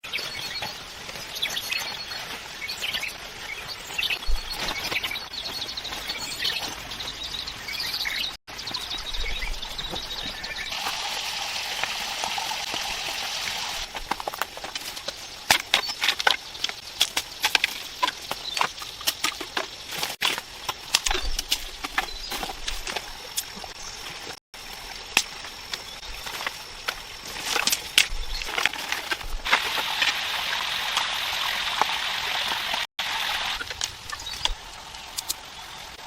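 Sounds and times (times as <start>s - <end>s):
birds chirping: 0.0s - 36.0s
steady water rush: 22.8s - 36.0s.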